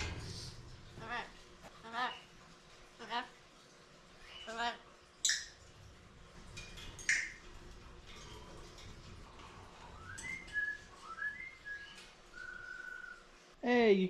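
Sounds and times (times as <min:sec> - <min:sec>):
birds chirping: 0:06.7 - 0:13.3
whistled bird notes: 0:10.0 - 0:13.3.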